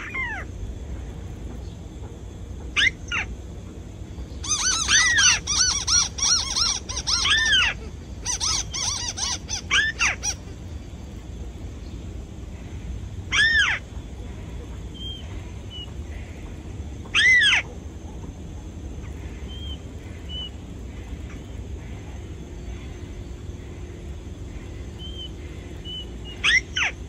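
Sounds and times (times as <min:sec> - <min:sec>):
decoy bird squealing calls: 0:02.8 - 0:03.3, 0:04.4 - 0:10.5, 0:13.3 - 0:13.9, 0:17.1 - 0:17.8, 0:25.0 - 0:27.0.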